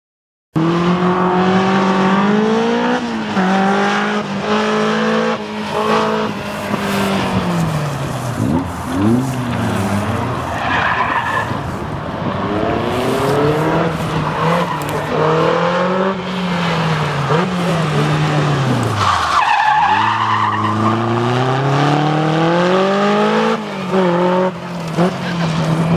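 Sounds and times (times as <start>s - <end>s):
tyre squeal: 10.4s - 11.8s, 18.9s - 21.1s.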